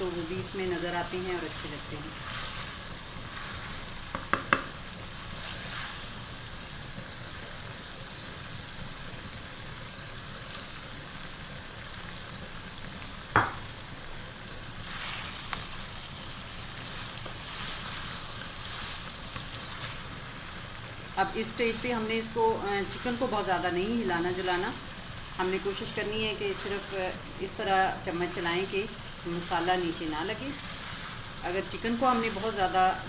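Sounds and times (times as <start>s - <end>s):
chicken sizzling in oil: 0.0s - 33.0s
wooden spatula knocking pan: 4.1s - 4.8s.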